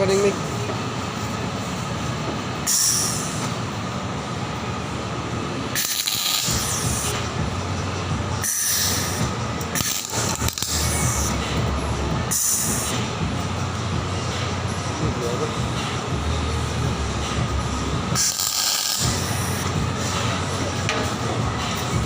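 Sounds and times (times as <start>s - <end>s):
welding arc crackling hiss: 5.8s - 7.2s, 8.4s - 11.4s, 18.2s - 19.6s.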